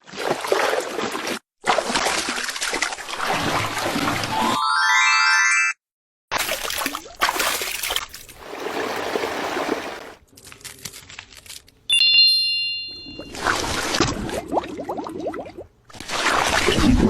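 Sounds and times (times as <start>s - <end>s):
short rising chime: 4.3s - 5.8s, 11.9s - 13.5s
liquid trickling and pouring: 6.4s - 10.2s
bright bell-like ding: 11.9s - 13.4s.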